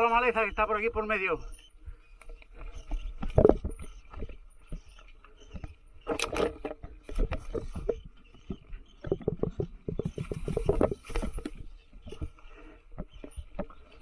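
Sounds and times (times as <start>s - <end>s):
bike rattling over rough trail: 0.0s - 14.0s.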